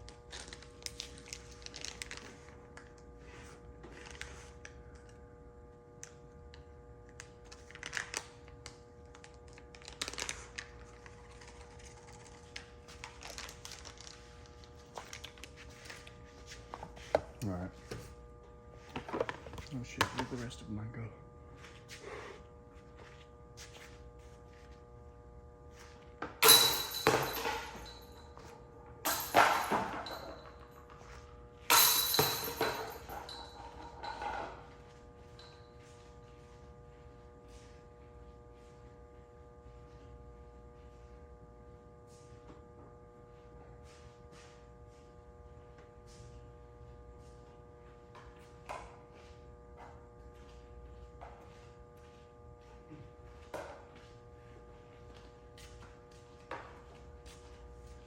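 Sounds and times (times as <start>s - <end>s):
steady hum: 8.2s - 58.0s
chains rattling: 26.4s - 28.2s, 29.1s - 30.6s, 31.7s - 34.6s
putters hitting basket chains: 26.4s - 28.4s, 29.0s - 30.9s, 31.7s - 34.6s.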